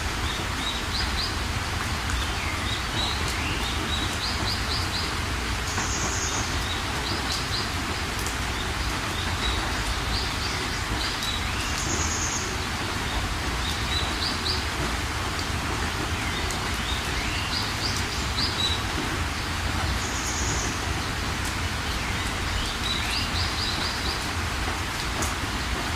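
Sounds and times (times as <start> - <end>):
steady rain falling: 0.0 - 25.9
birds chirping: 16.1 - 24.4.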